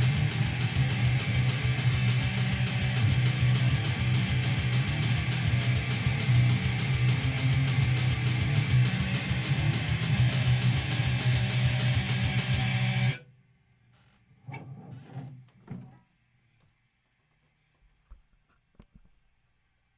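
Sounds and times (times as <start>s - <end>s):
heavy metal electric guitar: 0.0s - 13.2s.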